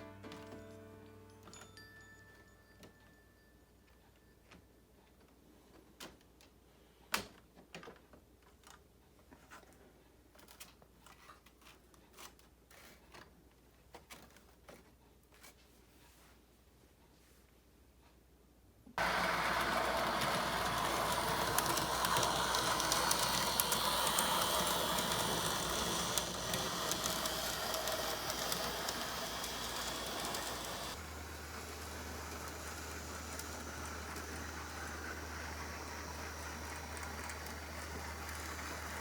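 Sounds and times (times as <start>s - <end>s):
model train whirring: 19.0s - 39.0s
wheels clicking on rails: 19.0s - 39.0s.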